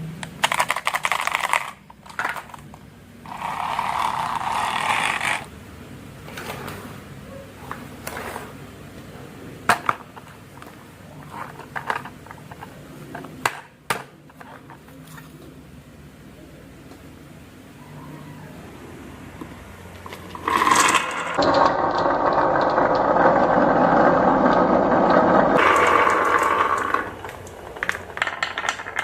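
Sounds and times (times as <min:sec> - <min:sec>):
marbles rolling and clicking: 0:00.4 - 0:05.5, 0:20.0 - 0:29.0.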